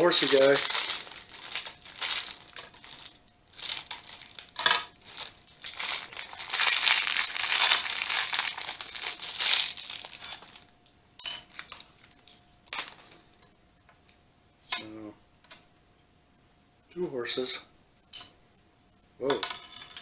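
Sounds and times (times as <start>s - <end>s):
plastic bag crinkling: 0.0s - 10.7s, 11.4s - 13.4s.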